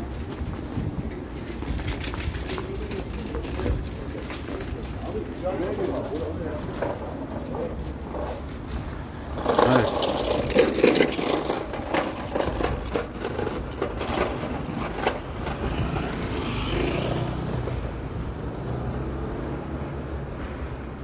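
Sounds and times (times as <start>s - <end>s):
city street traffic: 0.0s - 21.0s
vehicle passing: 15.3s - 21.0s.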